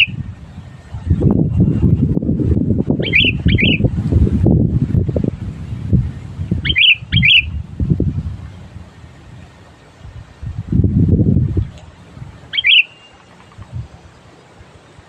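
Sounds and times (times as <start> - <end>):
loud irregular low rumble: 0.0 - 12.6
bird short chirps: 12.5 - 13.6.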